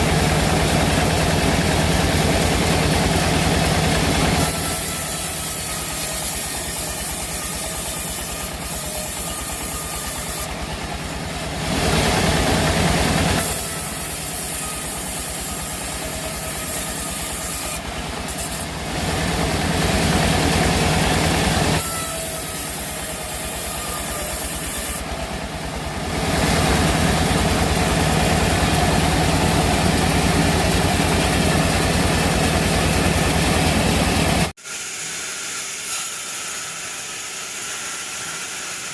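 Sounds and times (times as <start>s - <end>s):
engine low beat: 0.0s - 4.6s, 10.4s - 13.9s, 17.8s - 21.8s, 24.5s - 34.6s
saw cutting through log: 0.0s - 38.9s.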